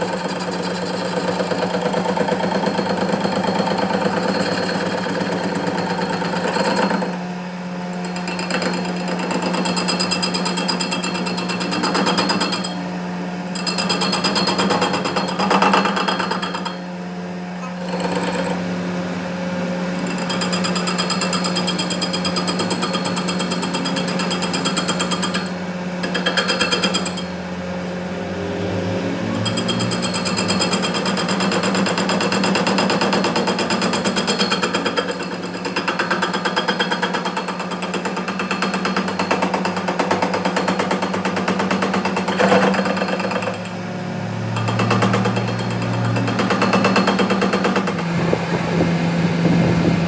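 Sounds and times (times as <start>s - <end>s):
power tool rattling: 13.5s - 16.8s, 17.6s - 18.7s, 19.9s - 27.4s, 29.4s - 43.8s, 44.5s - 48.2s
low hum: 27.1s - 31.5s.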